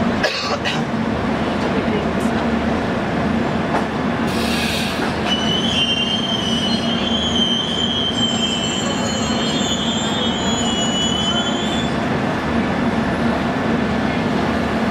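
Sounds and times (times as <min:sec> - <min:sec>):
train rumbling: 0:00.0 - 0:14.9
train wheels squealing: 0:04.4 - 0:12.1.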